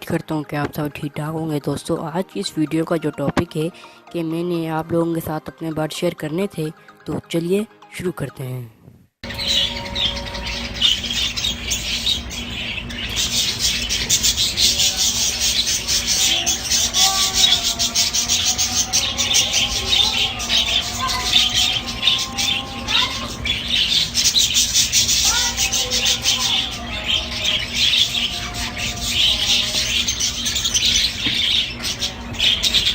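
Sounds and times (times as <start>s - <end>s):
low drawn-out bird calls: 9.2s - 32.9s
small birds chirping and chattering: 9.2s - 32.9s.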